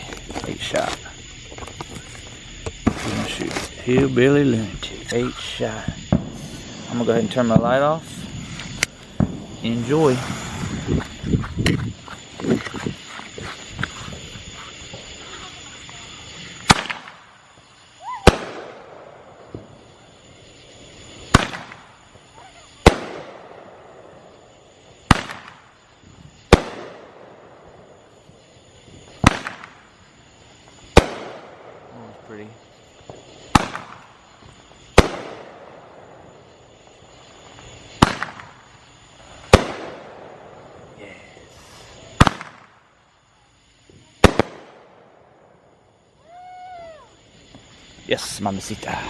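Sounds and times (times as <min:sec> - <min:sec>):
firework bangs: 0:00.0 - 0:43.1, 0:43.9 - 0:49.0
rising firework whistle: 0:08.0 - 0:23.4, 0:46.1 - 0:47.8.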